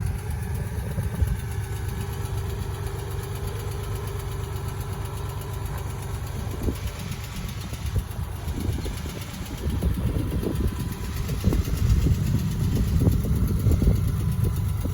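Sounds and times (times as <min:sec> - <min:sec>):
engine idling: 0:00.0 - 0:14.9.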